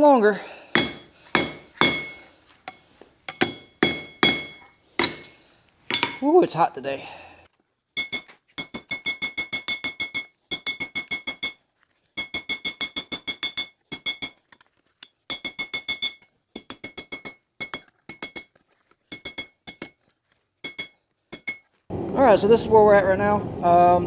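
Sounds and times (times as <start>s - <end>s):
hammer ringing on anvil: 0.8s - 6.3s.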